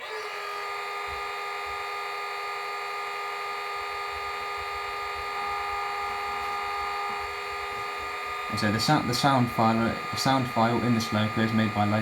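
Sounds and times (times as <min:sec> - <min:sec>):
diesel engine start-up through small speaker: 0:08.4 - 0:12.0.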